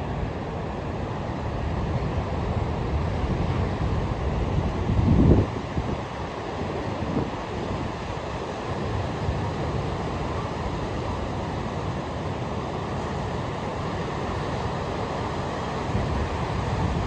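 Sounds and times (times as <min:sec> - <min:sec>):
ocean surf washing on beach: 0:00.0 - 0:17.0
wind rumbling on microphone: 0:01.9 - 0:08.0, 0:13.0 - 0:17.0.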